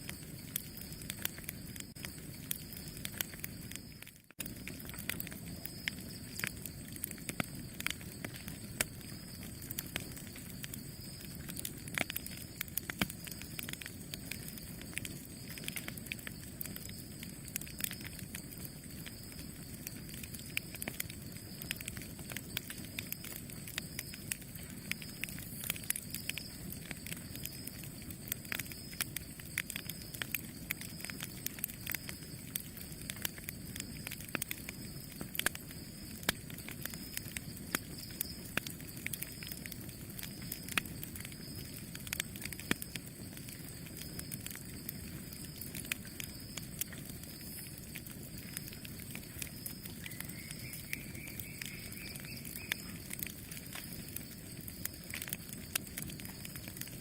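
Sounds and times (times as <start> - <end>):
rush of flames: 0.0 - 57.0
wood fire crackling and popping: 0.0 - 57.0.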